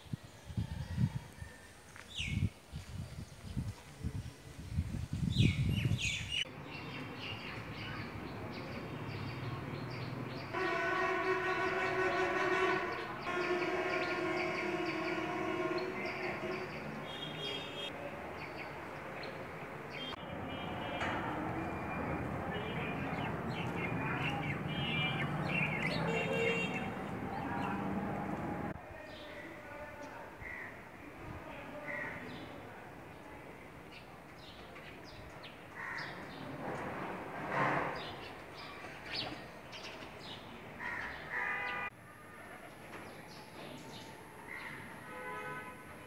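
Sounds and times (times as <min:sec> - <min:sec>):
birds calling: 0:10.0 - 0:17.9, 0:21.7 - 0:28.7.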